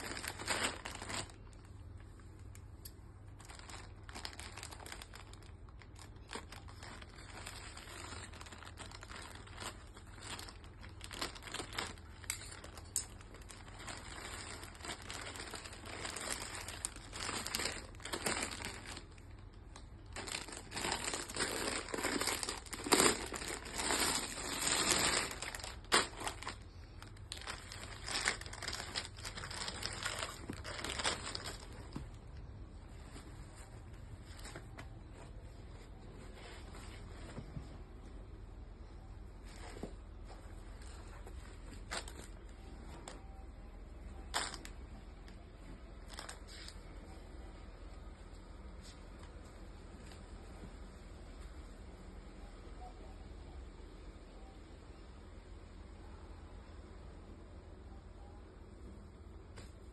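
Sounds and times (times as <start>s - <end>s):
packaging crinkling and rustling: 0.0s - 37.5s, 39.4s - 47.5s.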